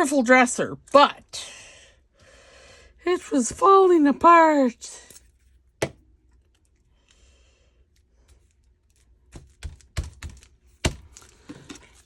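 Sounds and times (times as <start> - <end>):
soft breath: 1.4 - 3.0, 6.9 - 8.5.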